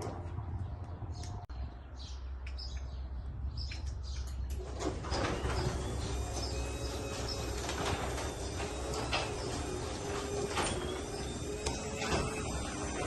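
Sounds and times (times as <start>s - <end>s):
garage door opener running: 4.5s - 13.0s.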